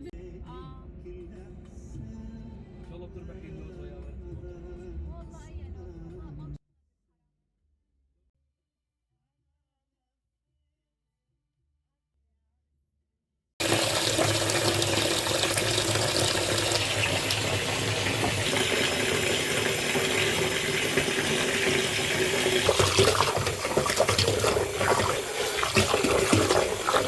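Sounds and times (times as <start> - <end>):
water running from tap: 13.6 - 27.0.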